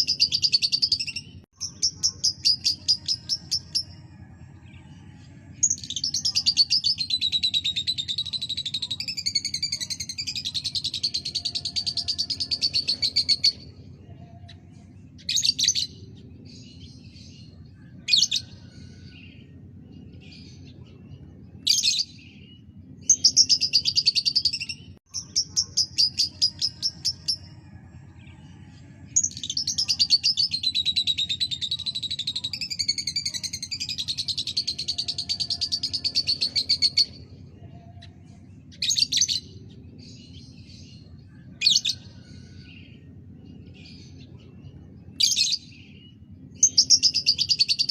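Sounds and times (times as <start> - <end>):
lovebird chirping and trilling: 0.0 - 4.0
steady low hum: 0.0 - 47.9.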